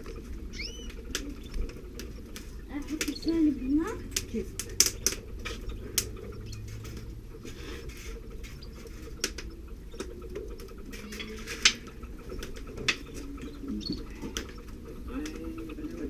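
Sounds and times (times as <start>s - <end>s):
sharp ticks and clicks: 0.0s - 7.4s, 8.0s - 16.0s
birds rustling in nest: 0.0s - 16.0s
steady low hum: 0.0s - 16.0s.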